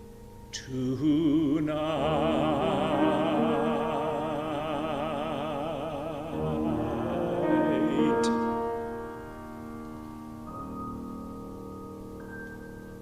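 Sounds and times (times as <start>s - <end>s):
piano accompaniment: 0.0s - 13.0s
man singing with vibrato: 0.5s - 8.9s.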